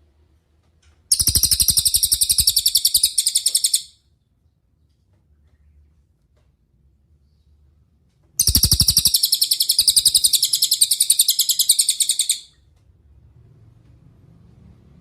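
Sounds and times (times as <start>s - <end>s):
songbird fast high trill: 1.1s - 3.9s, 8.4s - 12.5s.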